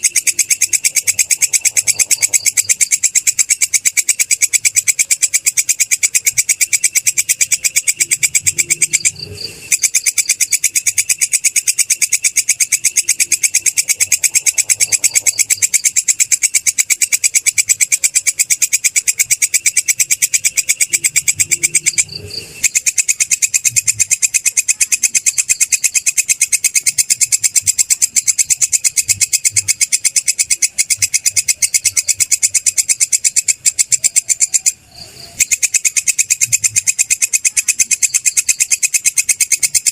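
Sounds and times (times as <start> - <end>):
insect shrill pulsing chirp: 0.0 - 39.9.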